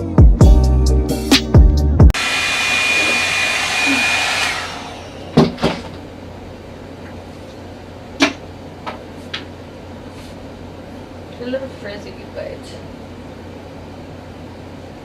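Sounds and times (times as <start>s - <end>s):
music: 0.0s - 2.2s
hair dryer brush whining: 2.1s - 5.6s.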